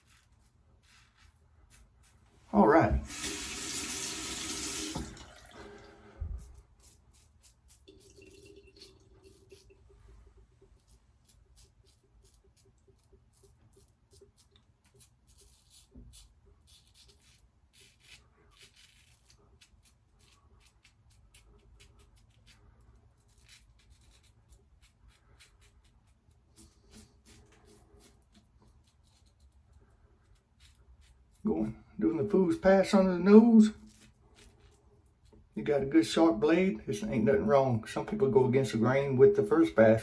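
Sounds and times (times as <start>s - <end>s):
razor scraping stubble: 0.0s - 2.3s, 6.2s - 8.2s, 10.6s - 31.7s.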